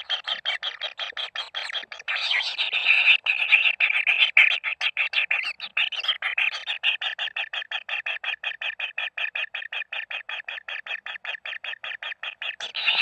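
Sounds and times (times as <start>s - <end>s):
bird calling harsh notes: 12.1s - 13.0s.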